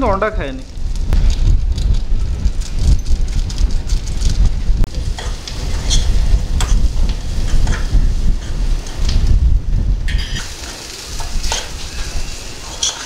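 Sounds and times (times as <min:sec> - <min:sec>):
low rumble: 0:00.0 - 0:10.5
onions sizzling in a pan: 0:04.9 - 0:13.0
metal spoon scraping a pan: 0:05.0 - 0:09.0, 0:10.1 - 0:13.0.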